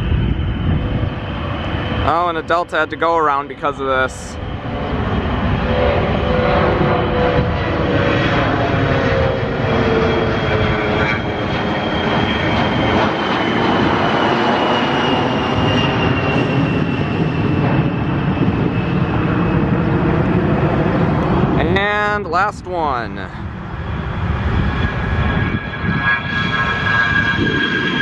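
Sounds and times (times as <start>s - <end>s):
jet engines roaring: 0.0s - 28.0s
high fan whine falling: 19.0s - 25.9s.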